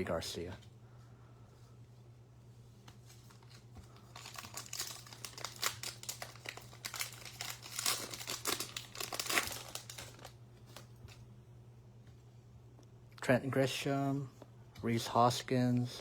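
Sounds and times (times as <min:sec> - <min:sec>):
steady low hum: 0:00.0 - 0:16.0
wrapper tearing and crinkling: 0:03.1 - 0:11.2.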